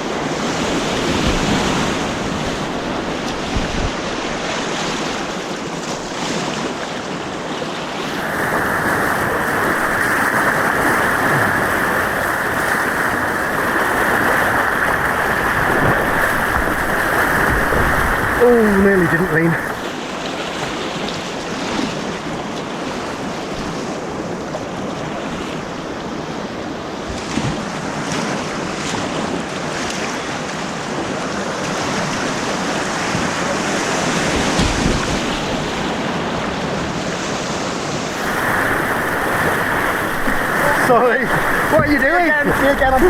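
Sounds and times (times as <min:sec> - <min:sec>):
wind noise on microphone: 0:00.0 - 0:05.3, 0:08.1 - 0:19.8, 0:33.1 - 0:43.0
white-water rapids rushing: 0:07.3 - 0:22.9, 0:29.5 - 0:43.0.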